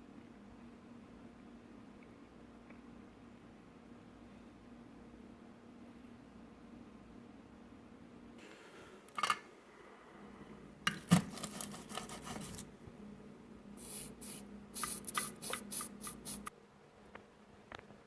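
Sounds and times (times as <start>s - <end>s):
low steady hum: 0.0s - 18.0s
scratchy hissing scrapes: 13.8s - 16.5s.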